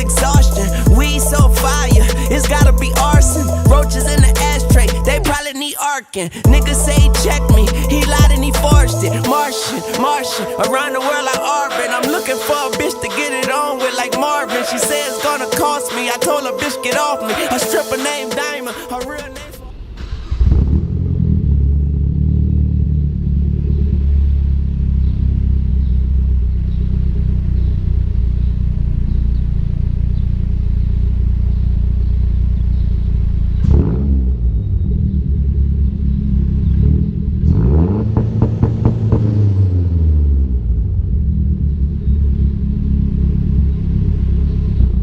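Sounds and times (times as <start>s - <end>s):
car engine idling and revving: 0.0s - 5.4s, 6.5s - 9.4s, 19.7s - 45.0s.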